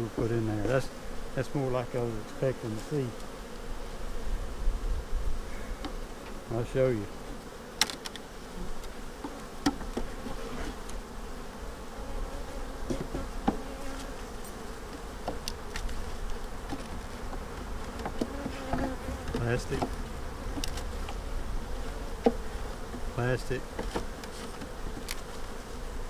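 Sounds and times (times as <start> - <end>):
honeybees buzzing: 0.0 - 26.0
hive frames clicking and knocking: 7.7 - 11.1, 12.8 - 21.2, 22.1 - 25.6.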